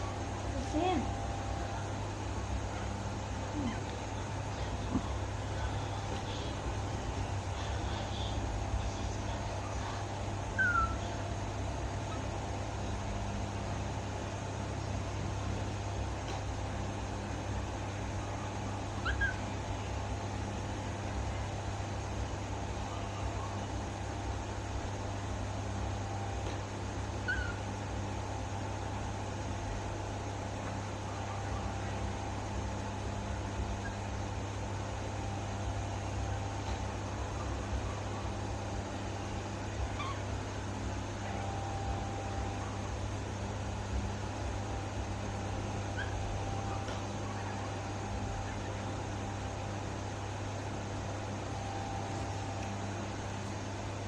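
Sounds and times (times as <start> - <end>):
steady low hum: 0.0 - 54.0
baby monkey squeaky call: 10.6 - 11.0, 19.0 - 19.4, 27.2 - 27.6, 40.0 - 40.2.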